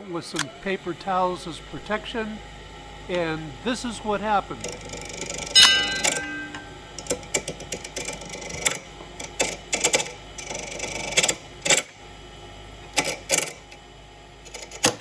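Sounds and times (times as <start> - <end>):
wood lathe clicks and knocks: 4.6 - 11.8.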